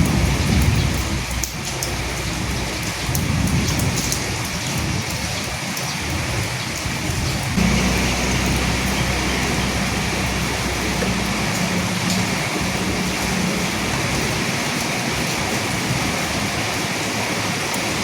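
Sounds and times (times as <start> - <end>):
rain falling: 0.0 - 18.0
low rumble: 7.6 - 16.3.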